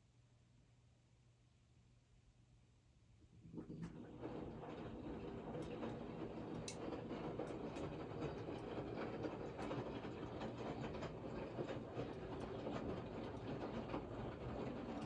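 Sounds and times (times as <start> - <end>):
washing machine rumbling: 3.3 - 15.0.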